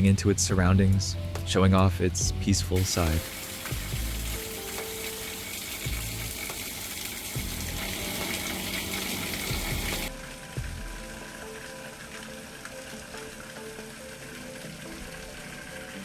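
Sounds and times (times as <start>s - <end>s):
steady hiss: 2.8s - 10.1s.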